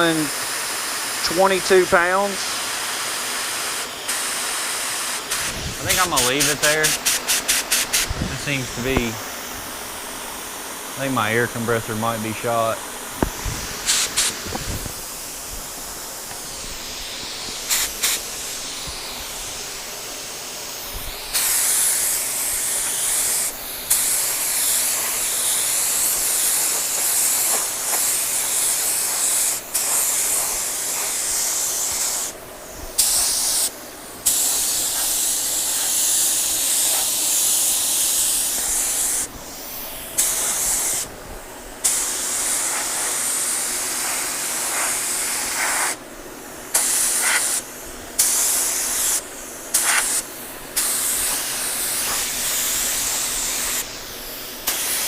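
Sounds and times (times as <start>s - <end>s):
paint spray gun hissing: 0.0s - 55.0s.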